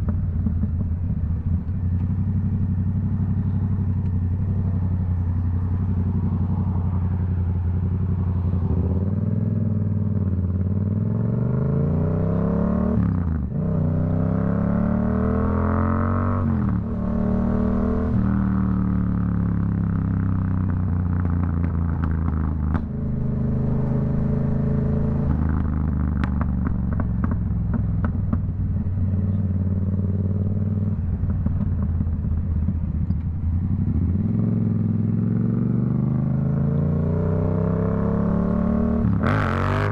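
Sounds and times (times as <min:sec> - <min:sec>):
motorcycle engine accelerating: 0:00.0 - 0:39.9
exhaust crackles and pops: 0:20.8 - 0:23.0, 0:25.2 - 0:28.9, 0:31.1 - 0:33.5.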